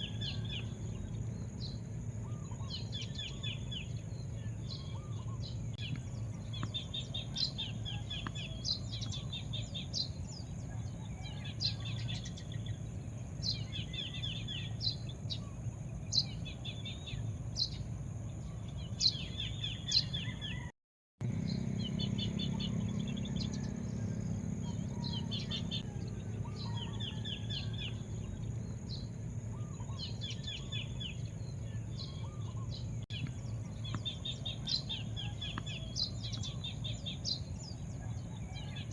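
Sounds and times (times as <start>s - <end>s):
low background rumble: 0.0s - 20.6s, 21.2s - 38.9s
small birds chirping: 0.0s - 38.9s
thin high hum: 21.2s - 38.9s.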